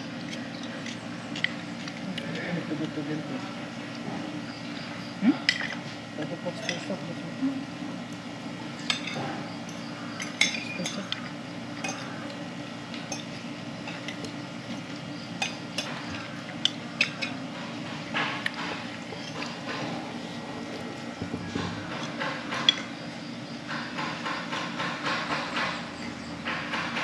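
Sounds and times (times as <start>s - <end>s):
low background hum: 0.0s - 27.0s
cutlery clinking against plates: 6.5s - 7.1s, 10.2s - 12.2s, 13.0s - 14.3s.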